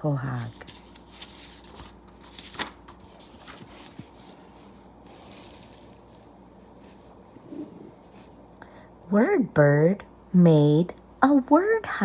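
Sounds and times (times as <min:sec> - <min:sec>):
paper page rustling: 0:00.2 - 0:08.3.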